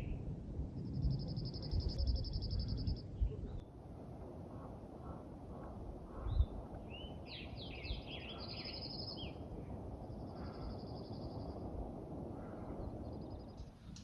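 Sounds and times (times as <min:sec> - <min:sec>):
songbird singing: 0:00.0 - 0:03.8, 0:04.6 - 0:11.7, 0:12.4 - 0:14.0.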